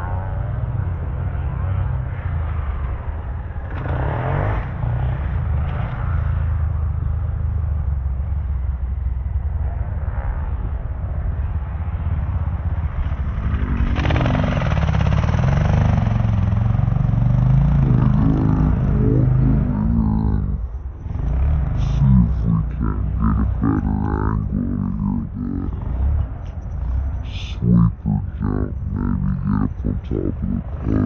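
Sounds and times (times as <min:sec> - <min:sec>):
dirt bike engines revving: 0:12.6 - 0:31.0.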